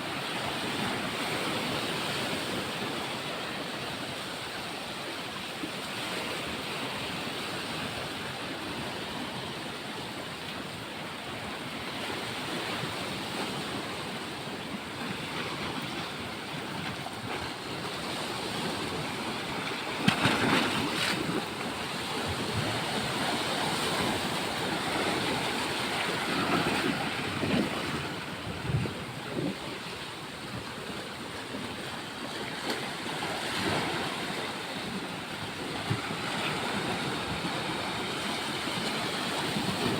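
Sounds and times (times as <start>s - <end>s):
sea waves washing onto beach: 0.0s - 39.9s
wind on microphone: 12.0s - 31.6s.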